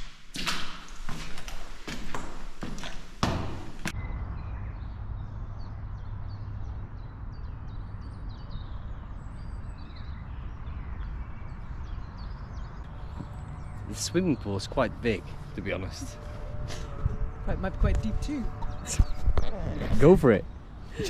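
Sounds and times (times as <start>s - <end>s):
small birds chirping: 3.8s - 21.0s
wind on microphone: 16.1s - 20.1s.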